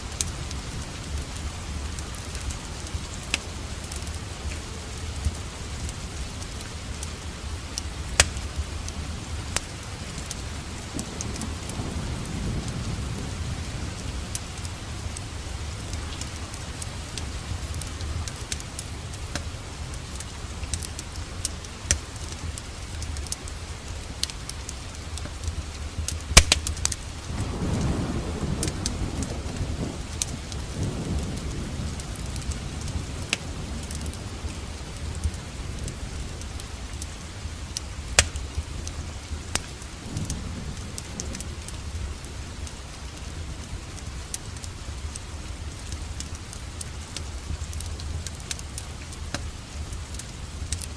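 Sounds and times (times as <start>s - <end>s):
steady rain: 0.0s - 50.9s
wood fire crackling: 0.0s - 50.9s
distant thunder: 7.2s - 20.2s, 26.3s - 36.6s, 39.9s - 44.2s.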